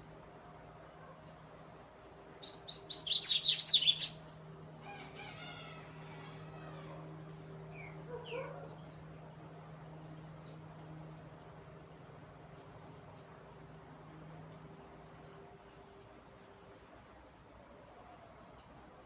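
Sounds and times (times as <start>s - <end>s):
seedeater bird singing: 2.4s - 4.3s, 7.7s - 9.1s.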